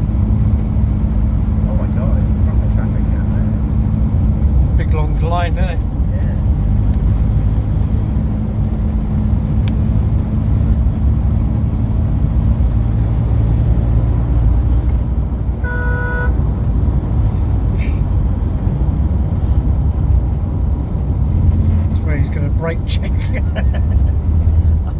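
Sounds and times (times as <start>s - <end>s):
car engine and road rumble: 0.0s - 24.9s
car horn toot: 15.6s - 16.5s.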